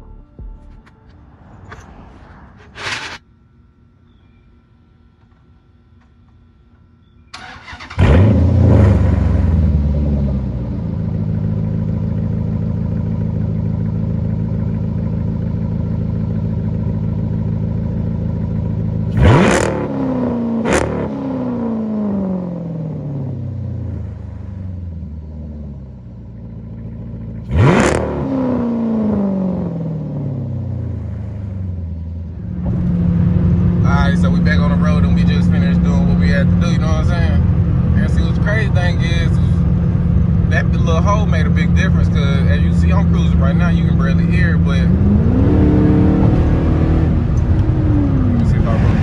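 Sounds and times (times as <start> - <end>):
car engine starting and idling: 0.0 - 49.0
engine revving blips: 6.1 - 12.4, 19.0 - 25.0, 26.8 - 49.0.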